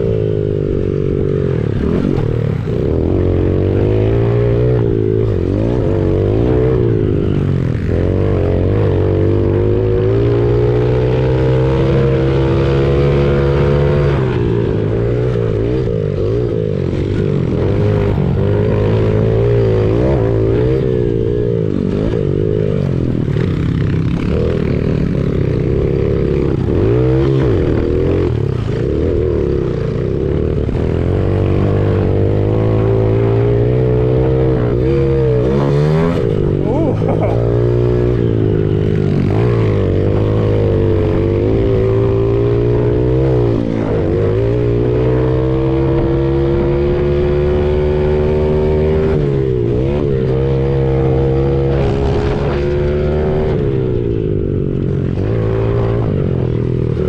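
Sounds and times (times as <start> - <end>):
small motorbike engine revving: 21.8 - 57.0.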